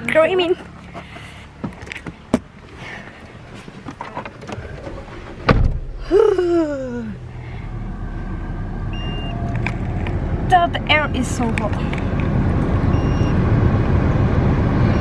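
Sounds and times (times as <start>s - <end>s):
car engine humming: 0.0s - 15.0s
car door shutting: 3.4s - 6.2s.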